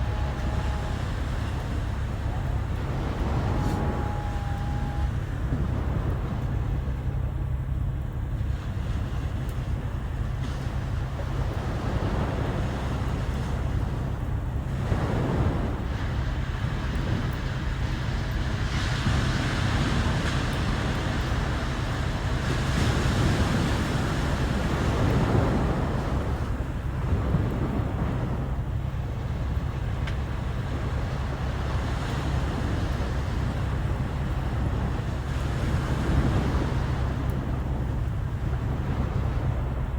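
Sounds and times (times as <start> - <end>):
sea waves washing ashore: 0.0 - 39.9
wind rumble on microphone: 0.0 - 39.9.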